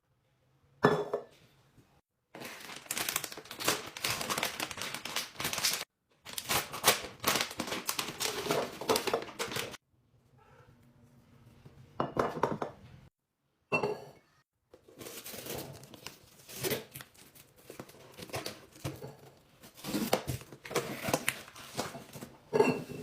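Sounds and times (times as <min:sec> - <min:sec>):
plastic packaging crinkling: 0:02.4 - 0:09.8, 0:15.0 - 0:18.9.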